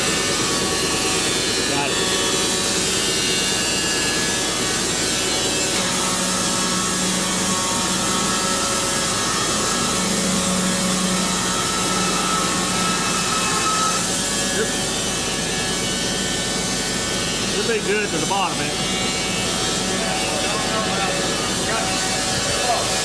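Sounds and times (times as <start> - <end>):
band saw cutting log: 0.0 - 23.0.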